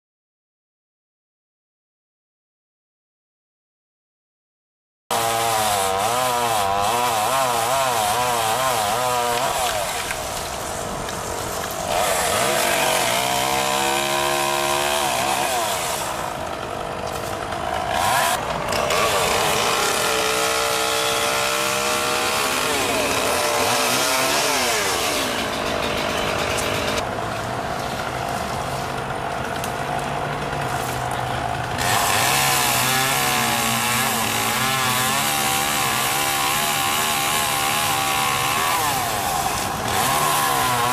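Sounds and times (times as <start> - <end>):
chainsaw revving and cutting wood: 5.1 - 40.9.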